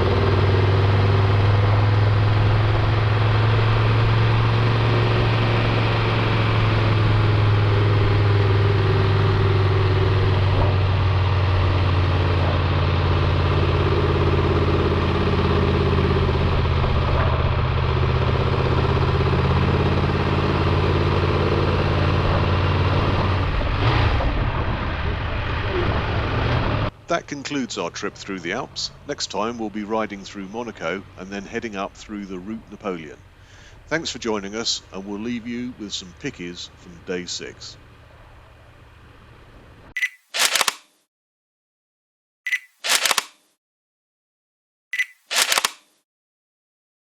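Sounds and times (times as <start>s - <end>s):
motorcycle engine running steadily: 0.0s - 23.7s, 35.0s - 39.9s.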